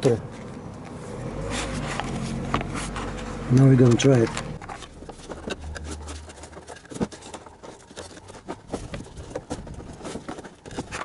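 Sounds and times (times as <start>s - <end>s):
hard parts clicking and scraping: 0.0s - 11.0s.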